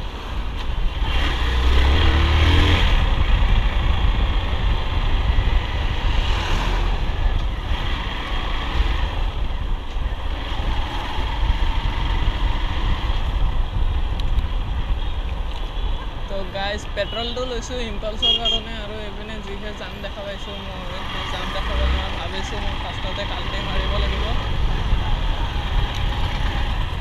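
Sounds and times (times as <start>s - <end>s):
wind buffeting microphone: 0.4s - 16.8s, 23.5s - 27.0s.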